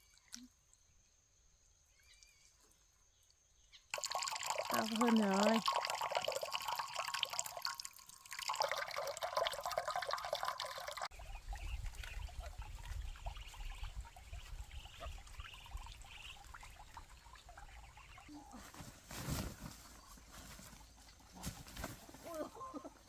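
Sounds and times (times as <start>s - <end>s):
faint high chirps: 0.0s - 3.9s
water pouring and trickling: 3.9s - 18.3s.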